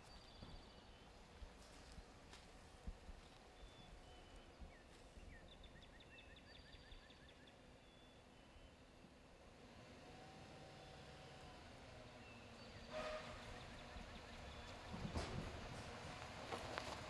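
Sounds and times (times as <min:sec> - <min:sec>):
faint birdsong: 0:00.0 - 0:09.4, 0:10.7 - 0:17.0.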